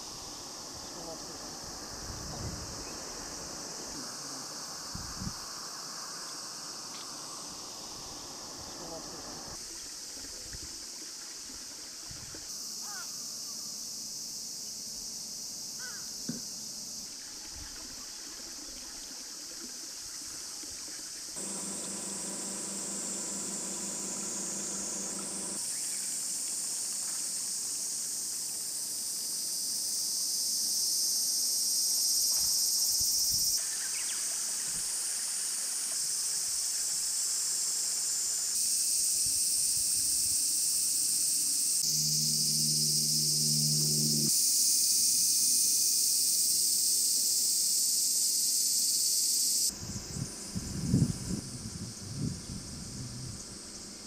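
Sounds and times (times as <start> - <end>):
insects chirring: 0.0 - 54.0
brief low hum: 41.8 - 44.3.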